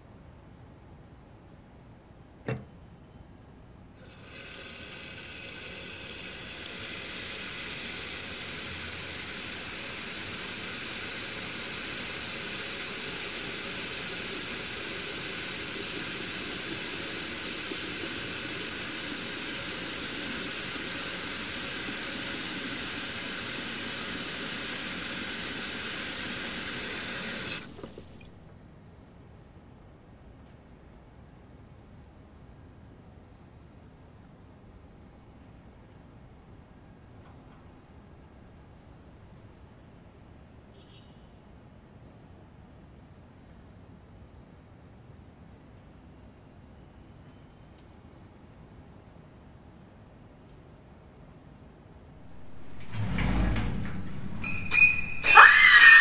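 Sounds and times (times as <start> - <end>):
shower spray hissing and splashing: 4.0 - 28.4, 52.3 - 56.0.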